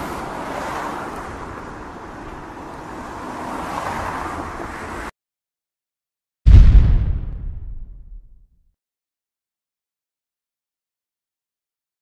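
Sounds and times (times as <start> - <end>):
fireball rushing rumble: 6.5 - 8.2.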